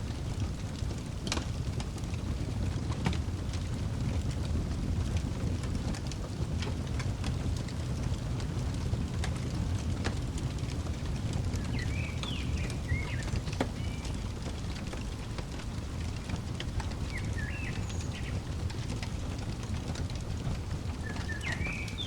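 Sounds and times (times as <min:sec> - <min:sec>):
fireplace crackling: 0:00.0 - 0:22.0.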